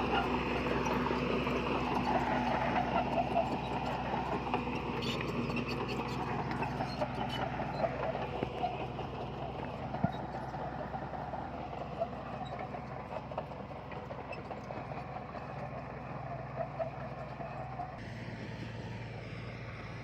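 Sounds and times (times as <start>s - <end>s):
heavy machinery engine drone: 0.0s - 20.0s.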